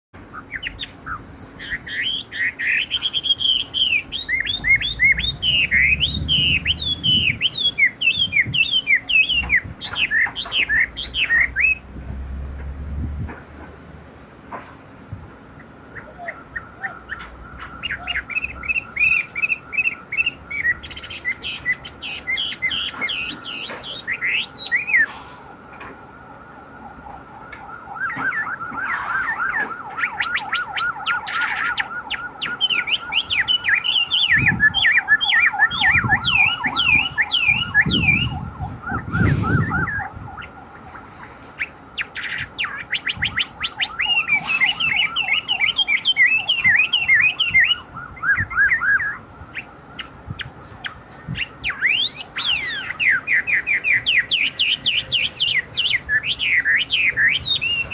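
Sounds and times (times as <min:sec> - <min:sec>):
bird singing whistled phrases: 0:00.3 - 0:11.8, 0:15.9 - 0:25.1, 0:28.1 - 0:38.4, 0:39.1 - 0:40.1, 0:41.6 - 0:49.2, 0:51.3 - 0:57.9.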